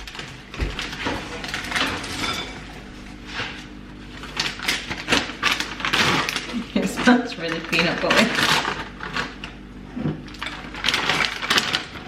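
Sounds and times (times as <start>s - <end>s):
utensils clinking: 1.0s - 2.8s.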